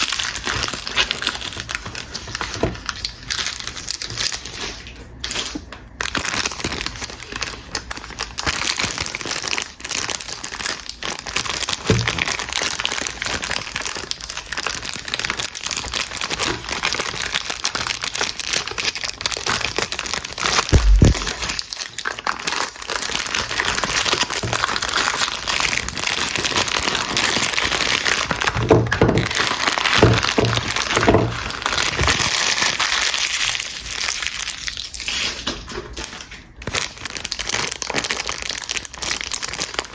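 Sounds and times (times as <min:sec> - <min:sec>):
packaging crinkling: 0:00.0 - 0:39.9
dull knocks: 0:20.8 - 0:21.3.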